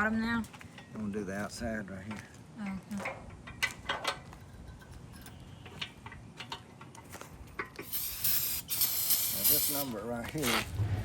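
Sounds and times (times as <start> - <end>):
aerosol can spraying: 7.8 - 10.0.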